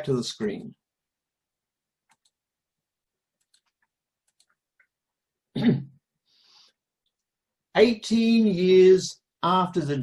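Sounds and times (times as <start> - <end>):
man speaking: 0.0 - 0.8, 7.7 - 10.0
computer mouse clicks: 2.0 - 2.4, 3.4 - 5.0.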